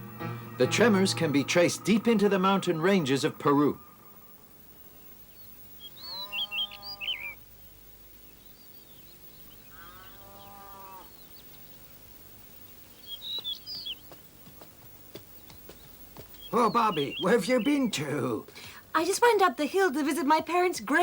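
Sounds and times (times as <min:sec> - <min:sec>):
small birds chirping: 0:00.0 - 0:21.0
cow mooing: 0:09.8 - 0:11.2.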